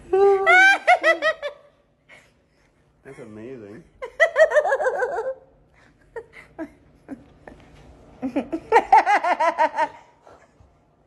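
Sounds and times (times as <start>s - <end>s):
woman laughing: 0.0s - 1.6s, 4.0s - 5.5s, 8.2s - 10.1s.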